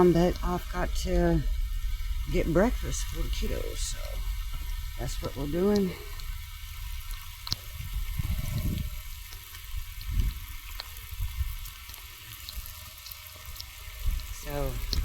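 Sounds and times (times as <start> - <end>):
low thumps: 0.0 - 9.2
heavy rain falling: 0.0 - 15.0.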